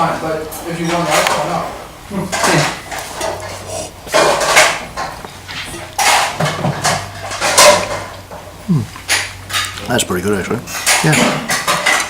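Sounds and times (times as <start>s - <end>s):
spoon scraping a plate: 2.3s - 9.8s.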